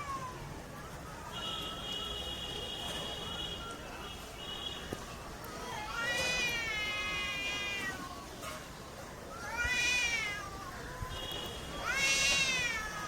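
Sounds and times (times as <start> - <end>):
cat meowing: 5.8 - 8.0, 9.4 - 10.8, 11.8 - 13.0.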